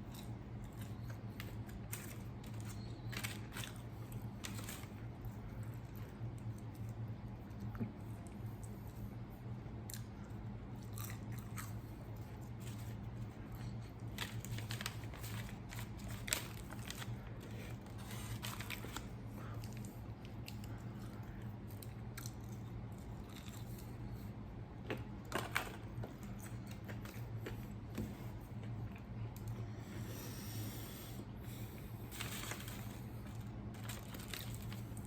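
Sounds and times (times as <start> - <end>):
rustles of food handled: 32.0 - 35.0.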